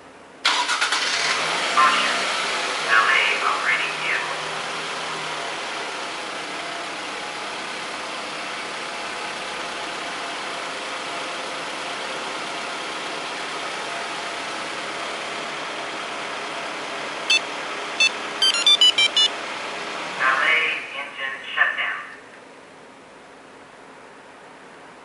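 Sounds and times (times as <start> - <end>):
car engine idling: 0.4 - 20.3
high-pitched electronic beeps: 17.3 - 19.3.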